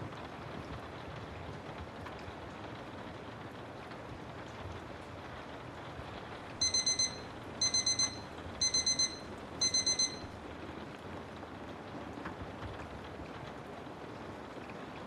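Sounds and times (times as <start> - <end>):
steady rain white noise: 0.0 - 15.0
digital timer alarm beeping: 6.6 - 10.3.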